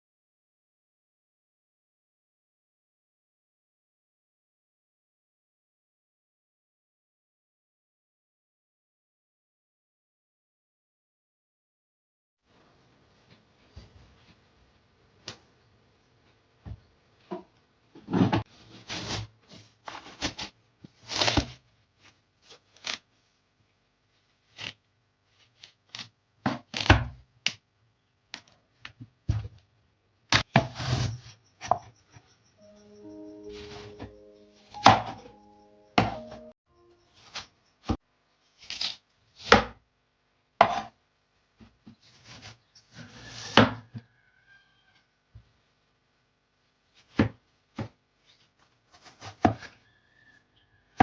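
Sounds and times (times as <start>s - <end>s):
soft background music: 32.6s - 37.3s
knife chopping on cutting board: 40.6s - 40.9s, 49.0s - 49.7s.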